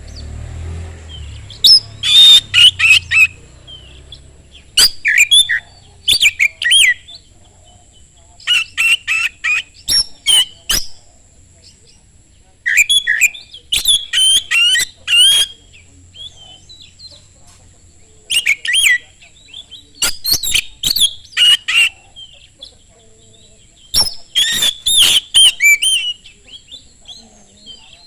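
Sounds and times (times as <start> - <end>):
bird singing whistled runs: 1.1 - 7.3, 8.4 - 11.0, 12.6 - 17.2, 18.3 - 22.4, 23.3 - 28.0.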